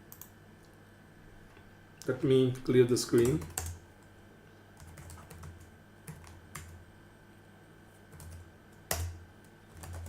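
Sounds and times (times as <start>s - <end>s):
computer keyboard typing: 0.0s - 0.3s, 3.1s - 3.8s, 4.8s - 6.8s, 8.1s - 10.0s.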